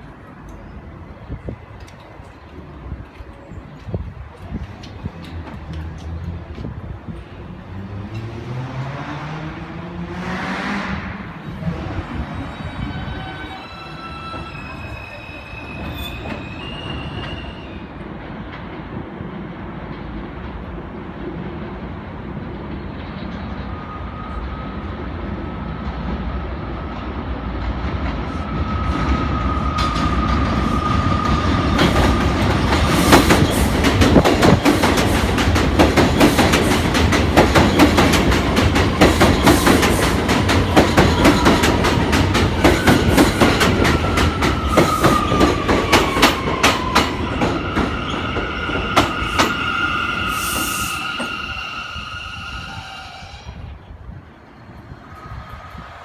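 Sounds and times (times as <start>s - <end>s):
subway train passing: 0.0s - 56.0s
wheels clacking over rail joints: 31.2s - 49.7s.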